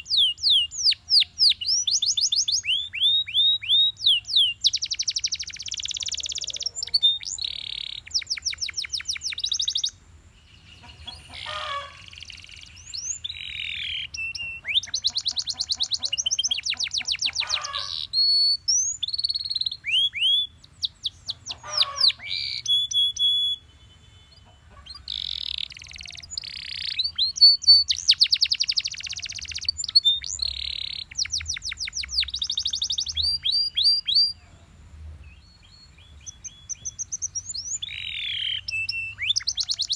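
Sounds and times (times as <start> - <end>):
canary singing trills and whistles: 0.0 - 10.0, 10.6 - 34.5, 35.3 - 39.9.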